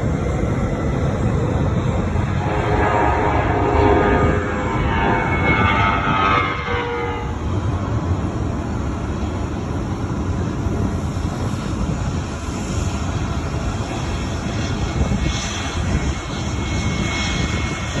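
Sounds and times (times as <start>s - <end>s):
jet engines rumbling: 0.0s - 18.0s
engine whine falling in pitch: 2.0s - 7.6s.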